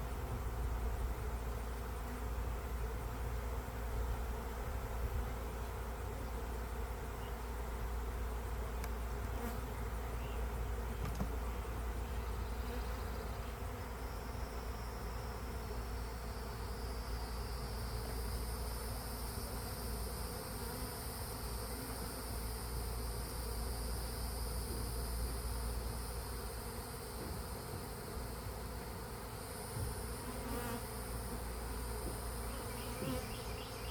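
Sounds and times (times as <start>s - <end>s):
honeybees buzzing: 0.0s - 33.9s.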